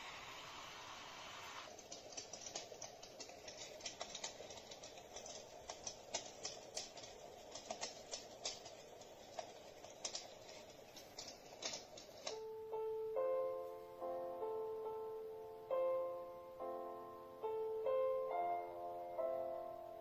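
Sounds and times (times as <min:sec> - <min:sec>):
soft steady hiss: 0:00.0 - 0:20.0
sharp crackling clicks: 0:01.6 - 0:12.4
piano notes: 0:11.6 - 0:20.0.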